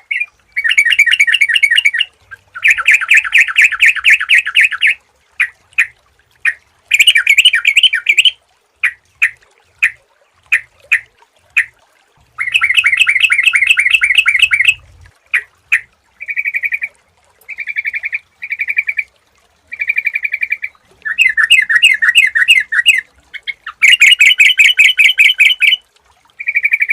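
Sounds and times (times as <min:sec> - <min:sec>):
bulbul singing: 0:00.0 - 0:11.7, 0:12.4 - 0:16.9, 0:19.7 - 0:25.8.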